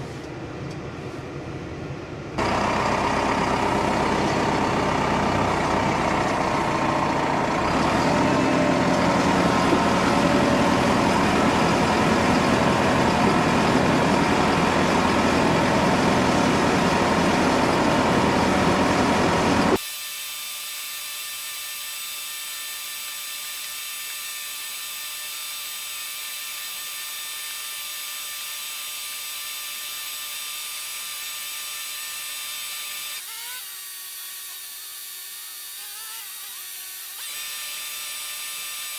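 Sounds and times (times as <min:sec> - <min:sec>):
machine whine with high tones: 0:02.4 - 0:19.8
tractor diesel engine running: 0:02.4 - 0:19.8.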